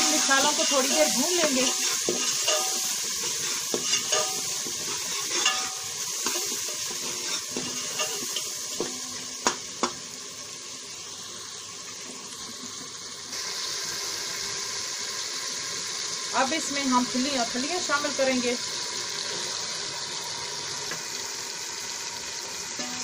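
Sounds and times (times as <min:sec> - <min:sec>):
metal spoon stirring and scraping: 0:00.0 - 0:09.2
spoon clinking on pot: 0:00.0 - 0:09.2
food sizzling in hot oil: 0:00.0 - 0:23.0.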